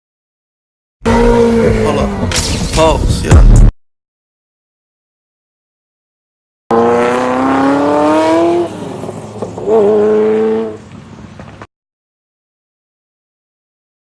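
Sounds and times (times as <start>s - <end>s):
supercar engine accelerating: 1.0s - 2.6s, 6.7s - 10.8s.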